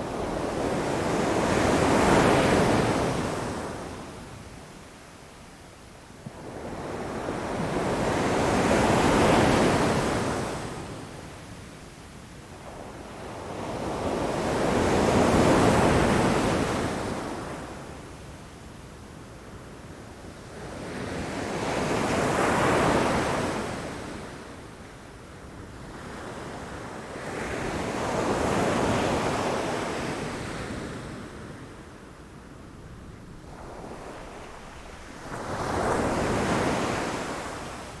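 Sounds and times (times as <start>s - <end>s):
wind: 0.0s - 38.0s
waves crashing on rocks: 33.0s - 38.0s.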